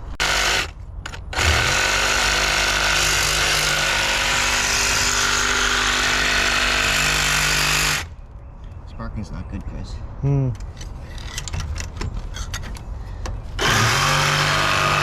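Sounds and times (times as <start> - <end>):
angle grinder cutting metal: 13.6 - 15.0.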